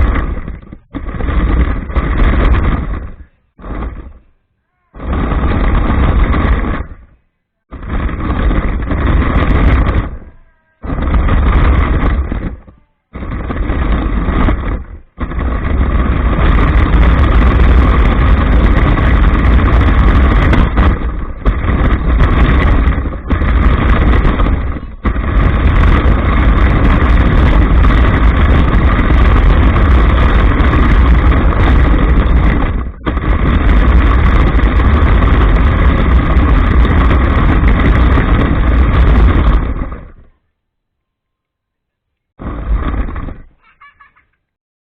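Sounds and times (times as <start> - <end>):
rc truck motor running: 13.4 - 40.1.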